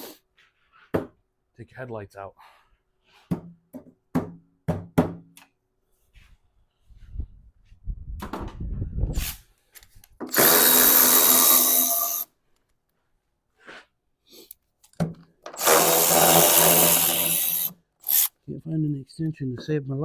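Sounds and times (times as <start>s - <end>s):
power tool running: 10.3s - 12.3s, 15.6s - 18.3s.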